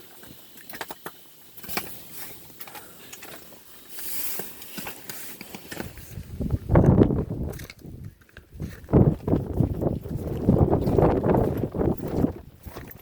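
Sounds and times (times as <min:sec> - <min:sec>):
crunching and rustling clicks: 0:02.6 - 0:13.0
wind buffeting microphone: 0:06.0 - 0:13.0.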